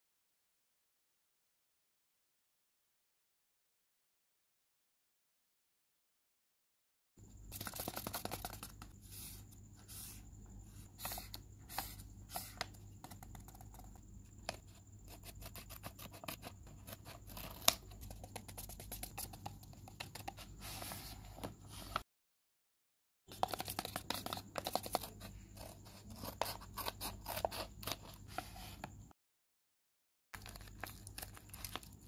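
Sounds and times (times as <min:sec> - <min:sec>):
faint steady hum: 0:07.2 - 0:22.0
paper rustling and scraping: 0:07.5 - 0:10.2, 0:10.9 - 0:22.0, 0:30.4 - 0:32.0.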